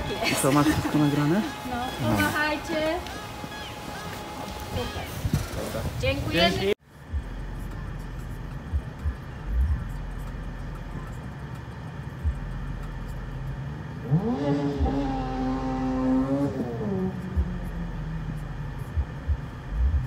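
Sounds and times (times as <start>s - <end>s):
car engine revving: 7.1s - 20.0s
car cabin hum: 14.8s - 20.0s.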